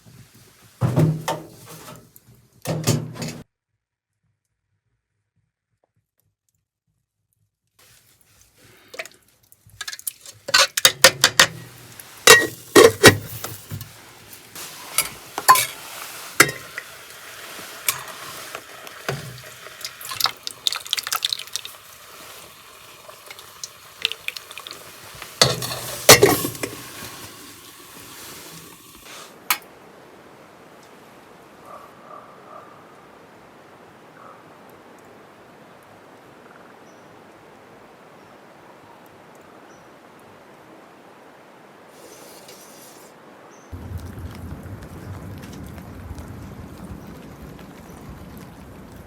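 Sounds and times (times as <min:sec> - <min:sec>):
faint steady hiss: 0:00.0 - 0:03.5, 0:07.8 - 0:49.0
cookware clinks and knocks: 0:12.3 - 0:13.6, 0:25.4 - 0:26.8.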